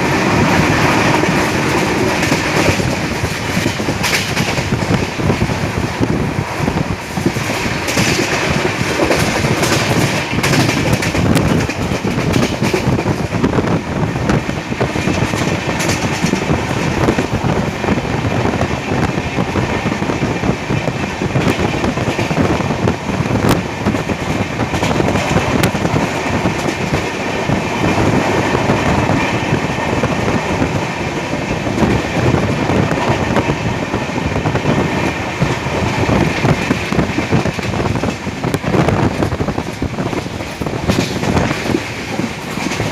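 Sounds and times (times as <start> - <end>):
train coaches rumbling: 0.0 - 42.9
wheels clattering over rails: 7.0 - 13.5, 35.4 - 42.9.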